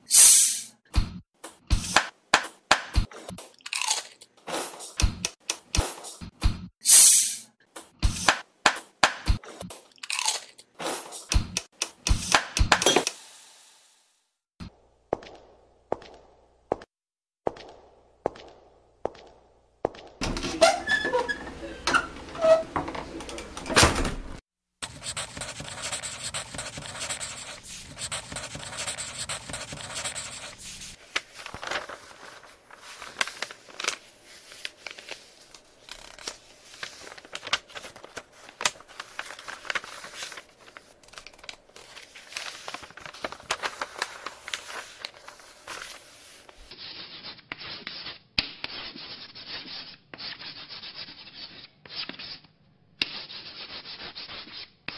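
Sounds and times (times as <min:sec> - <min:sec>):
rubbing and scratching: 0:24.8 - 0:52.4.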